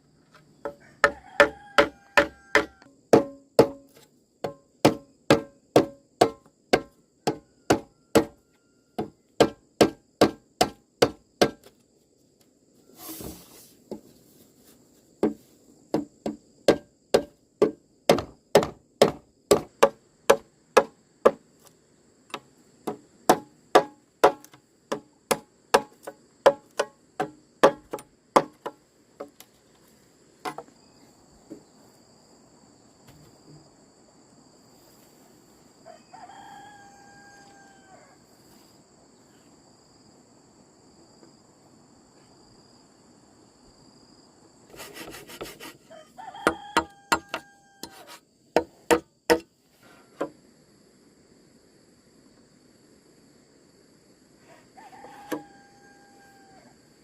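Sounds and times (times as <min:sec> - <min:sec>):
faint high insect drone: 0:00.0 - 0:57.0
hand tool chopping blows: 0:01.0 - 0:08.4, 0:09.0 - 0:11.7, 0:15.2 - 0:21.4, 0:22.3 - 0:28.8, 0:46.4 - 0:49.5.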